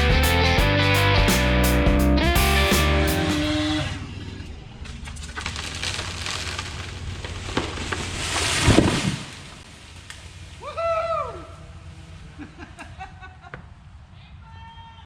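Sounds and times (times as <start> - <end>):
tree limbs cracking and snapping: 4.8 - 10.6
tree crashing to the ground: 4.8 - 11.0.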